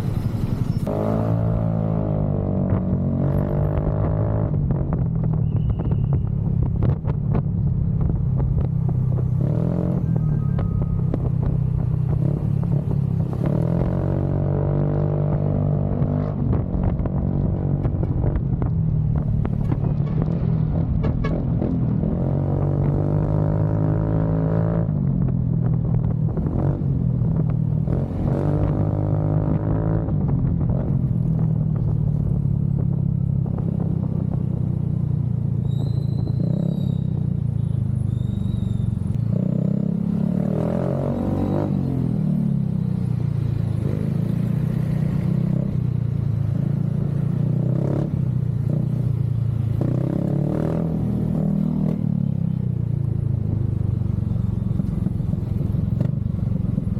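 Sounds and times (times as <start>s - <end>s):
motorcycle engine revving: 38.5s - 52.6s.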